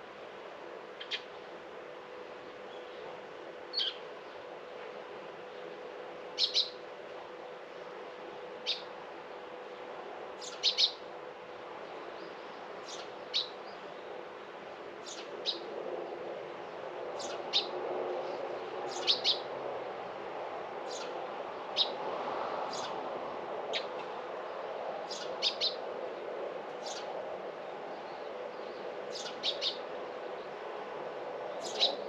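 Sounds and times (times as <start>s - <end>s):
low background hum: 0.0s - 32.0s
small bird chirping: 6.4s - 6.8s, 10.4s - 11.0s, 31.6s - 32.0s.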